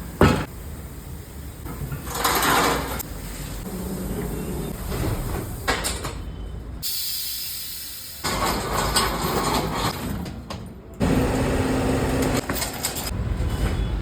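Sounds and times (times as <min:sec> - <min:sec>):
workshop machinery: 0:00.0 - 0:14.0
hiss of air: 0:06.8 - 0:08.4.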